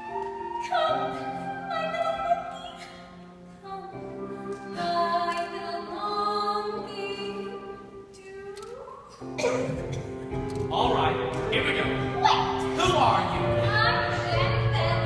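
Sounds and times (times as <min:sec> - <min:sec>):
orchestral accompaniment: 0:09.2 - 0:15.0.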